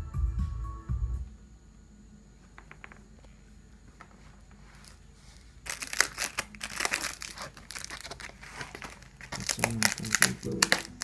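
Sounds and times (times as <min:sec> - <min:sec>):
plastic packaging crinkling: 0:04.6 - 0:11.0.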